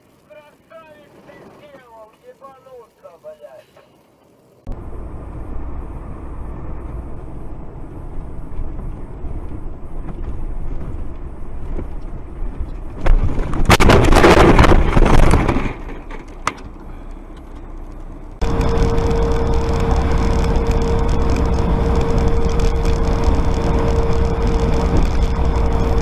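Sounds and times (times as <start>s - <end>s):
vehicle road and engine rumble: 4.4s - 13.8s, 14.5s - 26.0s
steady droning tone: 4.6s - 13.0s, 16.7s - 26.0s
loud crash and scraping: 12.9s - 16.6s.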